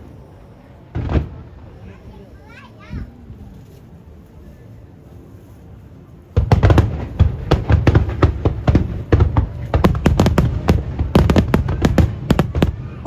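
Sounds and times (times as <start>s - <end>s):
fireworks bangs and booms: 0.9s - 2.2s, 6.4s - 13.0s.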